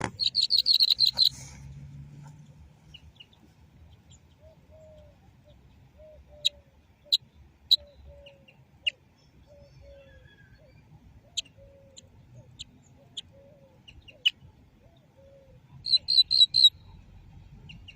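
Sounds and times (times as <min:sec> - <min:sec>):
sharp high chirps: 0:00.2 - 0:01.4, 0:15.9 - 0:16.8.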